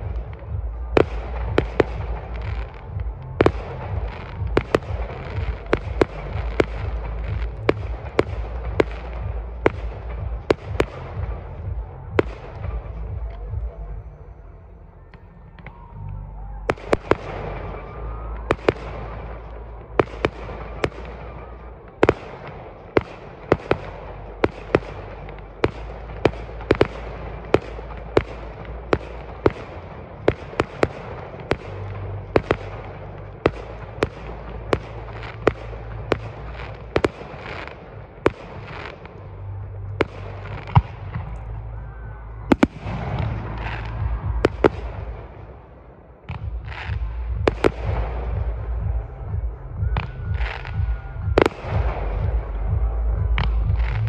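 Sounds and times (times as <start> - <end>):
fireworks bangs: 0.0 - 14.1, 15.1 - 54.0.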